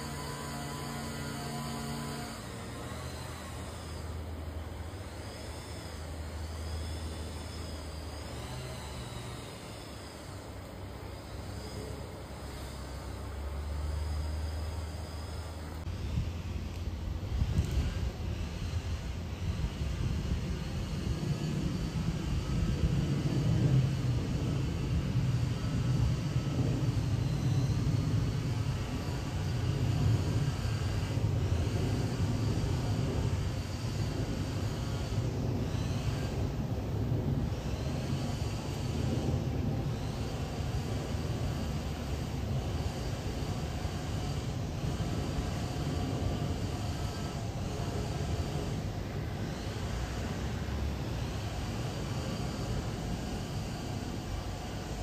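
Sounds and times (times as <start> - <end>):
aircraft engine droning: 0.0 - 55.0.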